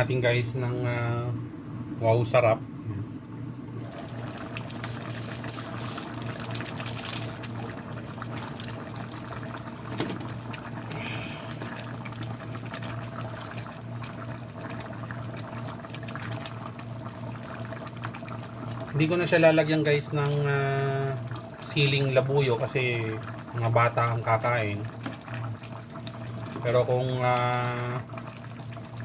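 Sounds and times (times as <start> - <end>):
curry bubbling in a pot: 3.7 - 29.0
low hum: 10.3 - 13.5.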